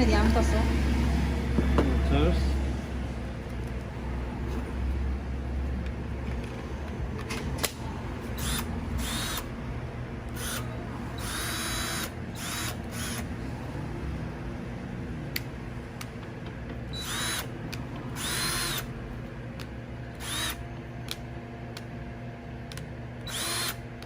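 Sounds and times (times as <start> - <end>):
cordless drill whirring: 8.2 - 9.5, 10.3 - 13.3, 16.9 - 18.9, 20.1 - 20.6, 23.2 - 23.9.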